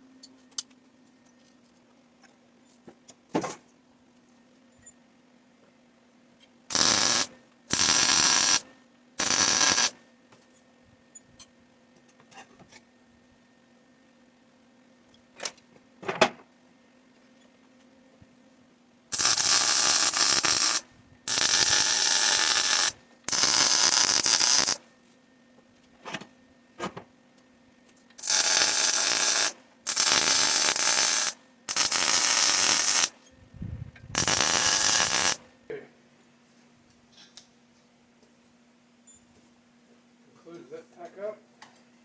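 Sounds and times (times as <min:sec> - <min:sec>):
arc welder hissing: 0:06.7 - 0:10.0, 0:19.1 - 0:24.8, 0:28.2 - 0:33.2, 0:34.1 - 0:35.4.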